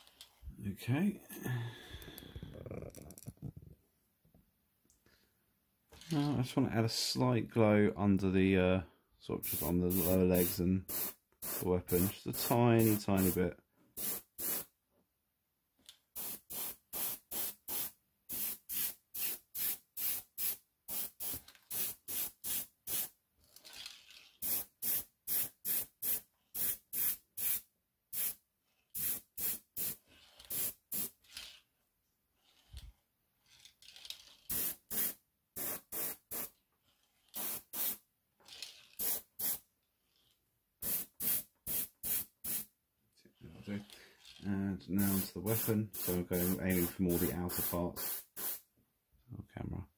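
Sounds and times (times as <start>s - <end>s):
airbrush spraying hissing bursts: 9.4s - 13.4s, 14.0s - 14.7s, 16.2s - 23.1s, 24.4s - 27.6s, 28.2s - 28.4s, 29.0s - 31.2s, 34.5s - 36.5s, 37.4s - 38.0s, 39.0s - 39.6s, 40.8s - 42.7s, 45.0s - 48.6s.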